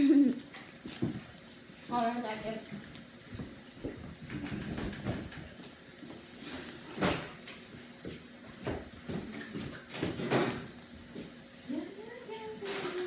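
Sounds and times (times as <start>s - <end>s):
objects knocking and rustling: 3.4s - 5.6s, 6.5s - 7.6s, 8.5s - 10.7s.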